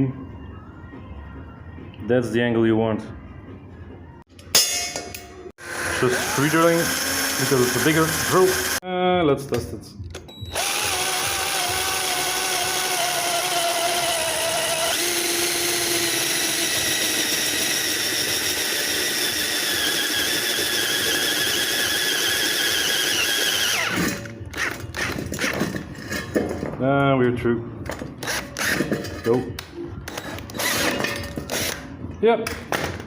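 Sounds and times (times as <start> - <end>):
power drill whining through metal: 5.6 - 8.8, 10.4 - 26.3, 28.2 - 29.2, 30.1 - 31.9.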